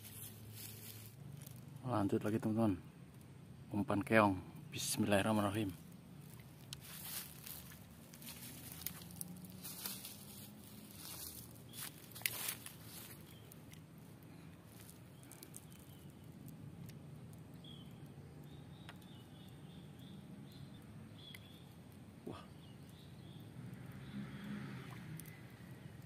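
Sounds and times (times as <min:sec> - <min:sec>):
small birds chirping: 0:04.7 - 0:24.6.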